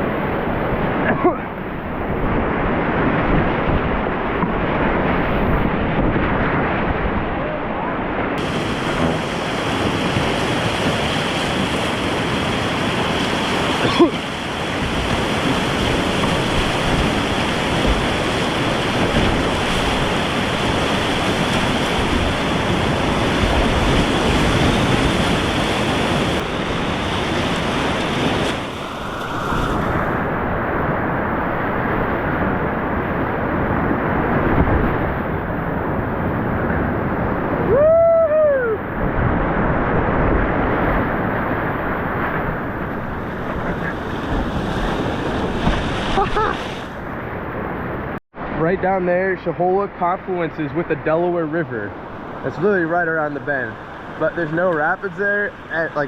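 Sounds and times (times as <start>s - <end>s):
whitewater rushing: 28.4s - 32.1s
rising and falling cry: 28.5s - 31.7s.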